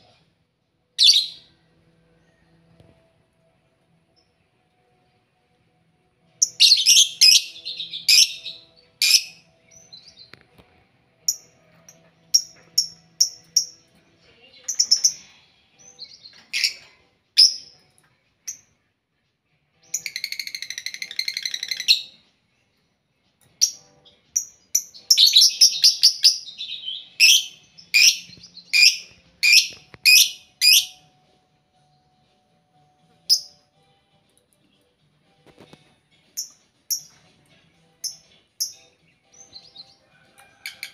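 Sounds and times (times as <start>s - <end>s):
shrill bird chirps: 1.0s - 1.6s, 6.4s - 10.4s, 19.8s - 22.2s, 23.6s - 31.1s, 33.2s - 33.6s.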